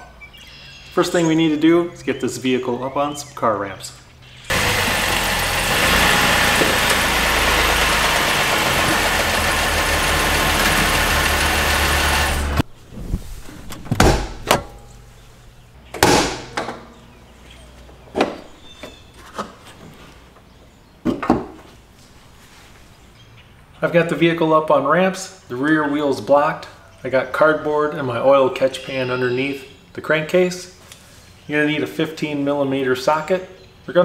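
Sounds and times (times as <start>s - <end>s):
car engine running: 4.5s - 12.6s
car hood clunks and clicks: 13.6s - 15.0s.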